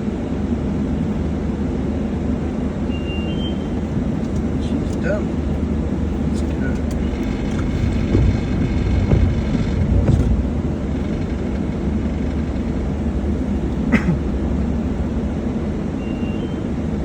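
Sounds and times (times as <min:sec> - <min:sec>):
car engine rumbling: 0:00.0 - 0:17.0
knocks: 0:05.3 - 0:14.2.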